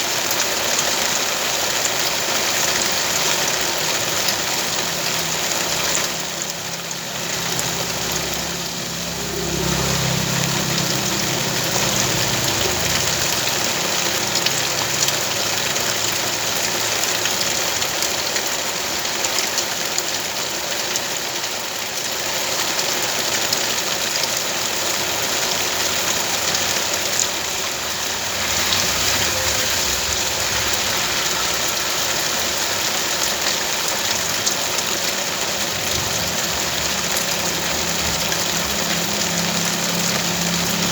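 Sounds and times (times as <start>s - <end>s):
rain hissing: 0.0s - 40.9s.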